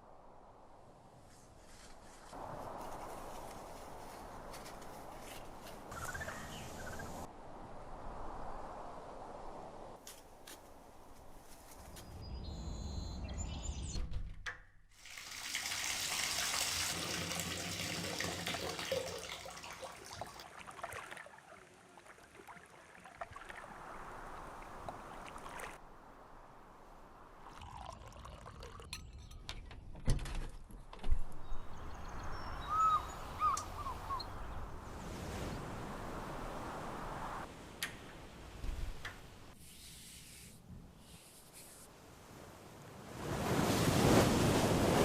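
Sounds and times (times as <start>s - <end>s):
bird chirping: 11.9s - 14.1s, 31.4s - 34.7s
water running: 15.0s - 25.8s, 27.4s - 28.9s.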